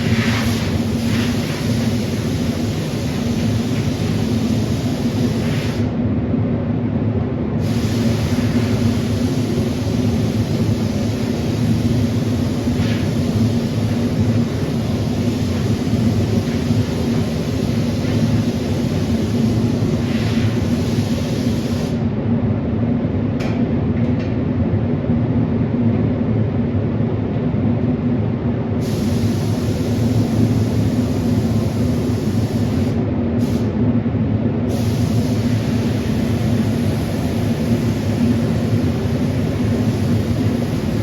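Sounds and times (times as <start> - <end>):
air compressor running: 0.0 - 6.0, 7.6 - 22.1, 28.8 - 33.8, 34.7 - 41.0.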